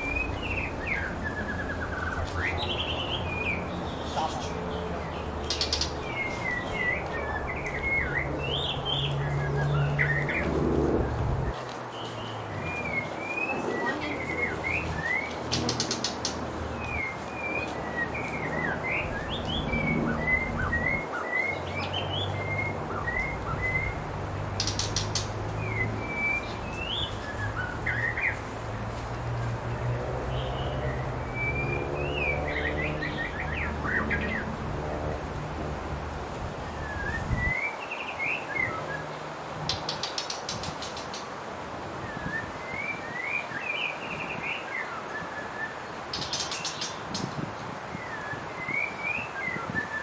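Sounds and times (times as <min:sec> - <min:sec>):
songbirds chirping and whistling: 0:00.0 - 0:50.0.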